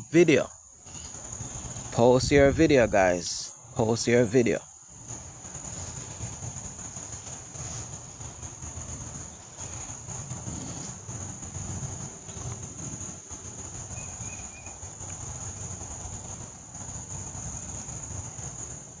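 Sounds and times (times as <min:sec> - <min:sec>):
insect chorus: 0:00.0 - 0:19.0.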